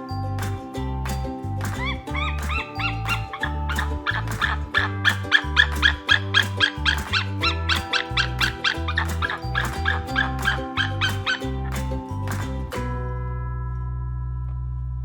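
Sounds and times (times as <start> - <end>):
background music with bass: 0.0 - 15.0
bird calling in sharp notes: 1.7 - 11.9.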